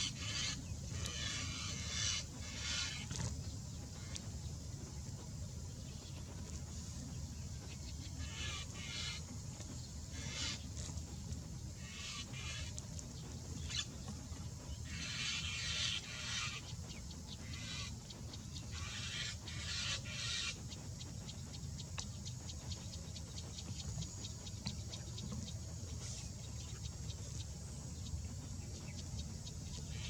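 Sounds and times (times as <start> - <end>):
high bird calls: 0.0 - 3.3, 7.9 - 11.0, 11.8 - 13.0, 13.6 - 14.0, 14.8 - 20.8.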